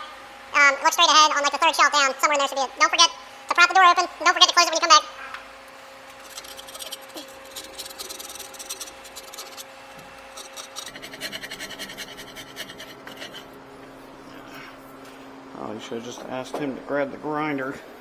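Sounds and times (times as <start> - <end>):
scraper scraping metal: 6.0 - 13.6.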